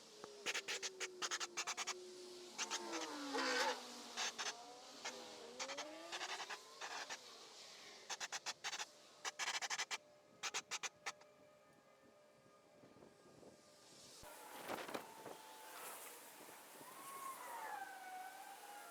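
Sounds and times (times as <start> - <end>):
rapid scratching strokes: 0.4 - 2.0, 2.6 - 7.4, 8.0 - 11.2
faint gliding tones: 14.2 - 18.9.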